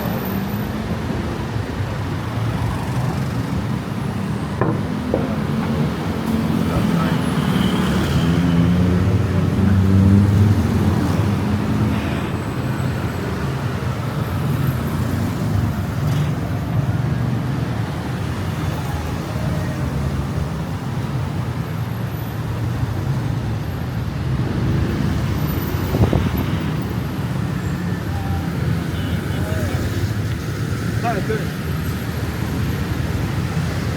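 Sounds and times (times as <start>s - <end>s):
city road traffic: 0.0s - 33.9s.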